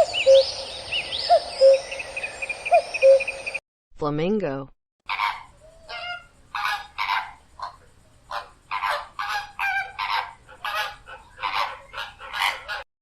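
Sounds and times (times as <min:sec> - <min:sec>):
flamingo honking calls: 0:05.1 - 0:12.8.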